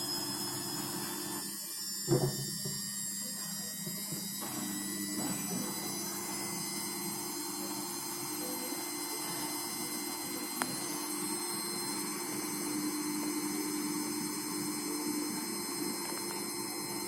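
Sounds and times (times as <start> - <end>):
washing machine spinning: 0.0 - 17.0
knock: 2.1 - 2.8.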